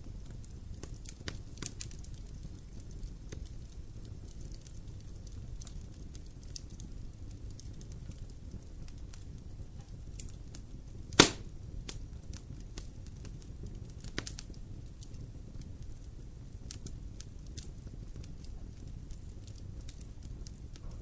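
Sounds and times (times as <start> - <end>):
low steady fire rumble: 0.0 - 21.0
wood fire crackling: 0.0 - 21.0
loud sharp pop: 11.1 - 11.5.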